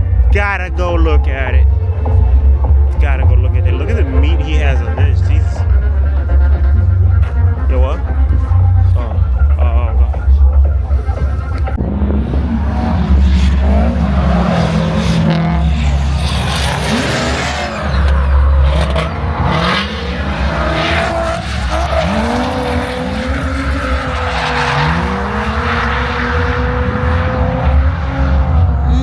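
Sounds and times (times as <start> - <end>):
car engine revving: 0.0 - 29.0
tyres squealing and skidding: 10.5 - 26.8.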